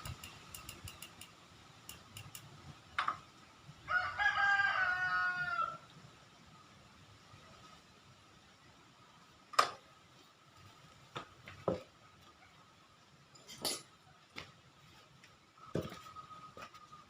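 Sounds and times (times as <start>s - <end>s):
sharp clinks and knocks: 0.0s - 3.2s.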